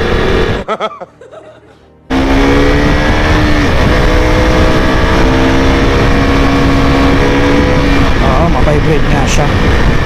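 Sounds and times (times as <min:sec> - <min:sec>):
motorcycle engine cruising: 0:00.0 - 0:00.8, 0:02.1 - 0:10.0
rush of riding wind: 0:02.2 - 0:10.0.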